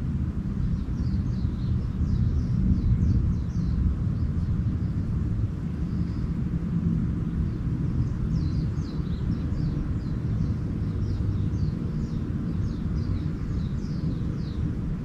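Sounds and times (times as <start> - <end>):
low rumble: 0.0 - 15.0
small songbirds chirping: 0.0 - 15.0.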